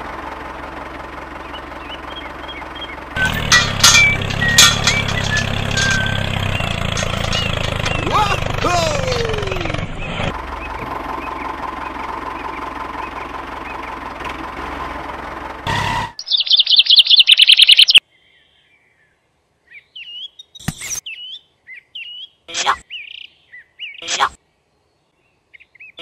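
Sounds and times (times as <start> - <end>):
songbird chirps and tweets: 1.4 - 8.1, 16.2 - 26.0
fast trill of high bird notes: 1.5 - 10.3.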